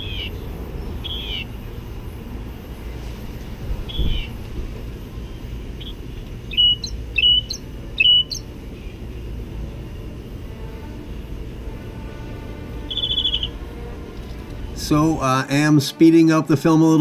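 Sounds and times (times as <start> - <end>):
mockingbird singing: 0.0 - 2.0, 3.8 - 4.4, 5.1 - 9.3, 12.8 - 13.9.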